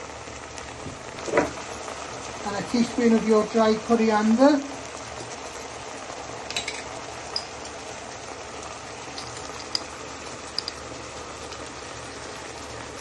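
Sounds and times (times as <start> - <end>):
food sizzling in a pan: 0.0 - 13.0
oil popping and crackling: 0.0 - 13.0.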